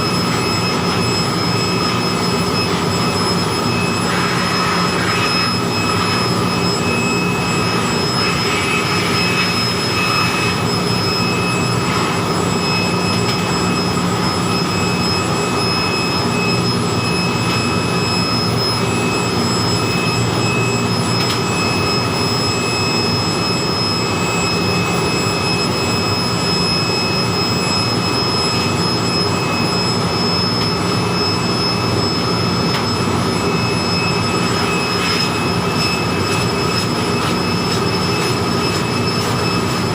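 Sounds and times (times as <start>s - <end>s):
electric air blower running: 0.0s - 25.4s.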